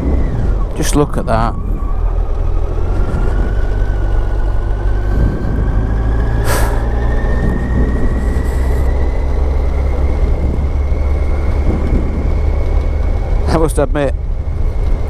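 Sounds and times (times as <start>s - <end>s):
motorcycle engine accelerating: 0.0s - 15.0s
wind rumble: 0.0s - 15.0s
brief hiss: 6.5s - 6.8s.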